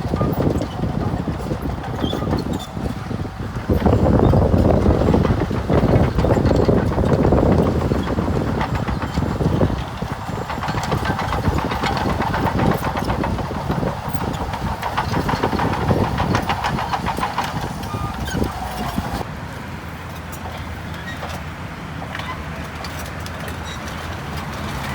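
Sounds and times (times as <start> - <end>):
rapid rattling clatter: 0.0 - 19.2
diesel engine running: 0.0 - 24.9.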